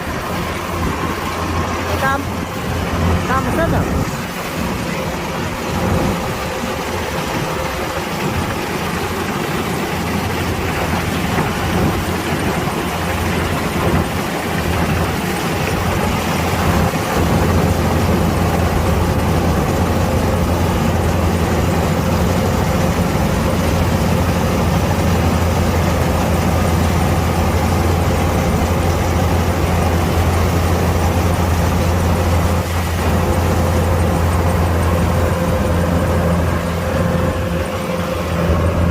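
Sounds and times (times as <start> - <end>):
combine harvester diesel engine: 0.0 - 38.9.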